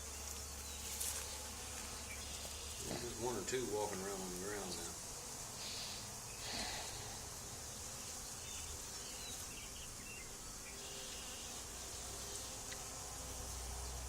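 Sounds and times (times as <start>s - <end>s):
bee swarm buzzing: 0.0s - 14.0s.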